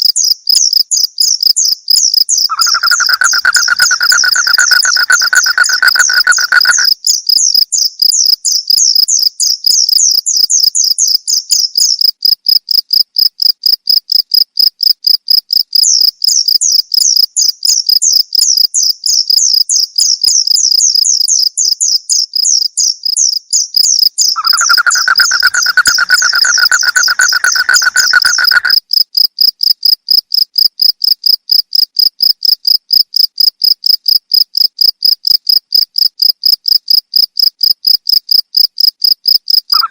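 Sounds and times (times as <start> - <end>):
crickets chirping: 0.1 - 20.8, 23.0 - 39.9
low steady trill: 2.5 - 6.9, 24.4 - 28.7.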